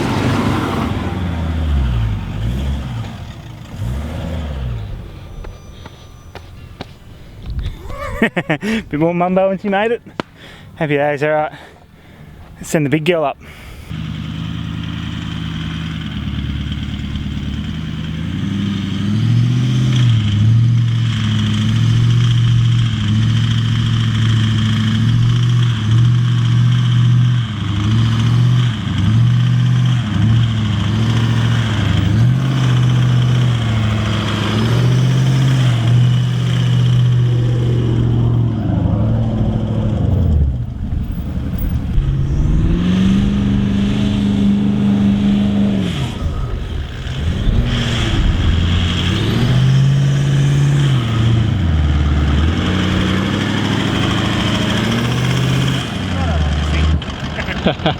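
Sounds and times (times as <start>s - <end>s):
engine working hard under load: 0.0s - 7.7s, 13.4s - 57.9s.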